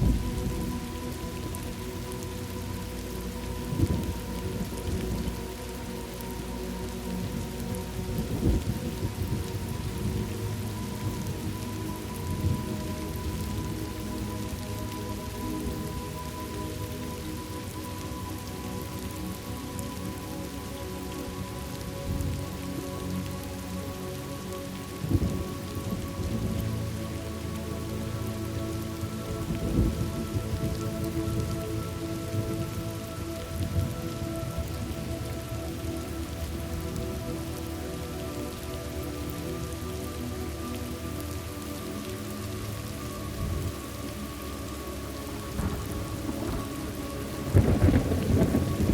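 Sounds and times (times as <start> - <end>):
low rolling thunder: 0.0 - 1.5, 45.5 - 48.9
steady rain: 0.0 - 48.9.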